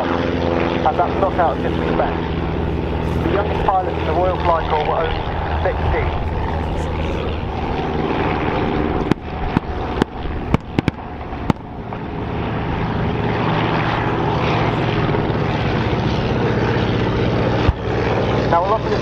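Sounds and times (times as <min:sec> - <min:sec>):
propeller aircraft flying past: 0:00.0 - 0:19.0
sharp cracks: 0:09.0 - 0:11.7.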